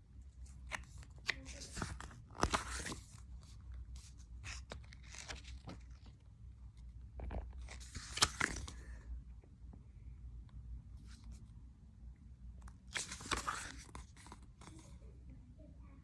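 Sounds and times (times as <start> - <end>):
low steady hum: 0.0 - 16.0
book pages rustling and turning: 0.4 - 9.0, 12.7 - 14.9.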